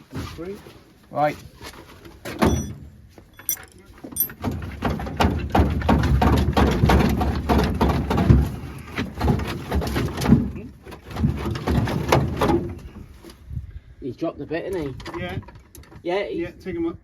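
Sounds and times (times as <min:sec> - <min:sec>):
metallic knocking and clanking: 0:02.4 - 0:02.8, 0:03.4 - 0:05.2.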